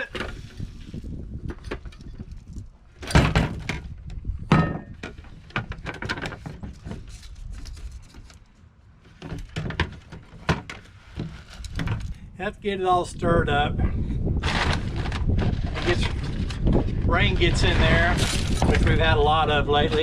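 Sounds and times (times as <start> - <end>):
loud thumps: 3.0 - 3.9, 4.5 - 6.0.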